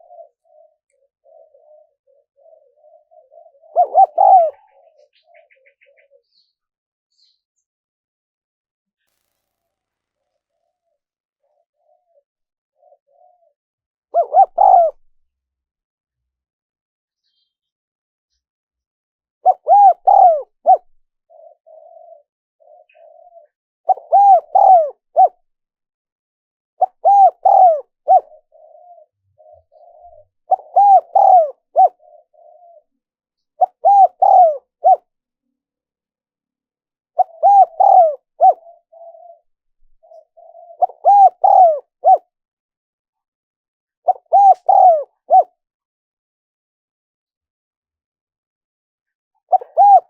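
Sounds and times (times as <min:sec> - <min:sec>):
dove cooing: 0:00.0 - 0:06.5, 0:11.4 - 0:13.6, 0:14.2 - 0:15.1, 0:19.4 - 0:25.4, 0:26.8 - 0:33.0, 0:33.6 - 0:35.1, 0:37.2 - 0:42.3, 0:44.0 - 0:45.6, 0:49.5 - 0:50.0.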